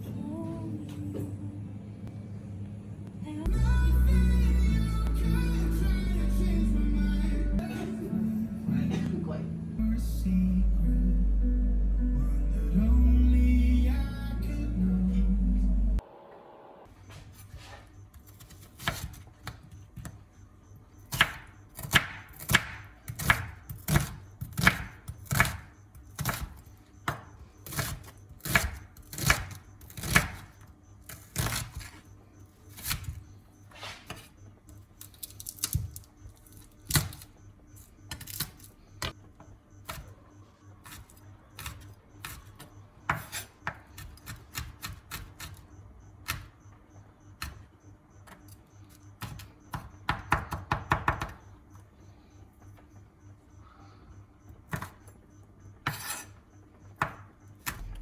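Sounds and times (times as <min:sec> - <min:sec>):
knife chopping on cutting board: 0:21.1 - 0:30.5.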